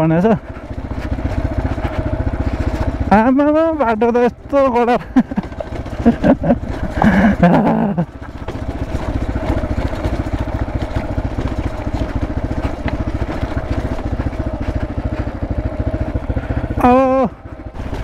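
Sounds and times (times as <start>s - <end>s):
dirt bike engine chugging: 0.0s - 18.0s
person speaking: 3.1s - 5.3s, 16.7s - 17.4s.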